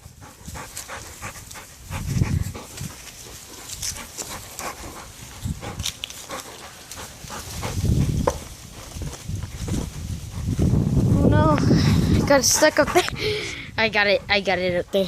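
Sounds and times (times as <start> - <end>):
dogs panting: 0.0 - 15.0
clicks and rustles: 2.2 - 10.1
dull low thump: 7.8 - 13.2.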